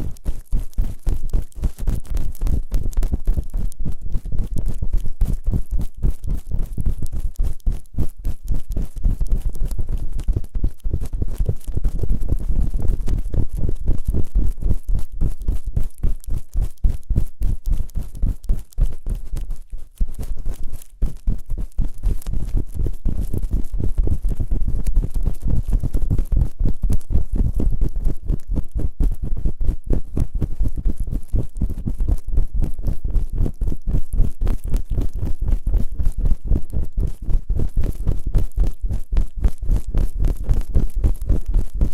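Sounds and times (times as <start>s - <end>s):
rubbing and scraping on microphone: 0.0s - 41.9s.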